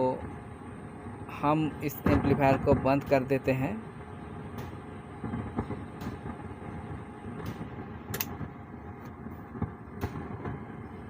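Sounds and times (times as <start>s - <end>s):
amplifier speaker crackling: 4.5s - 11.0s
sharp clicks: 7.4s - 8.4s.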